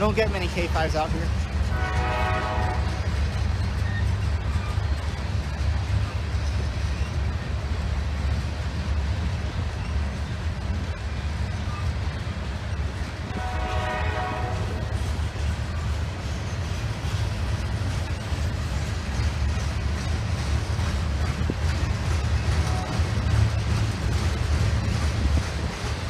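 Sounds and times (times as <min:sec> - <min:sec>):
low rumble of passing train: 0:00.0 - 0:26.0
locomotive air horn blast: 0:01.7 - 0:03.0, 0:13.3 - 0:14.9.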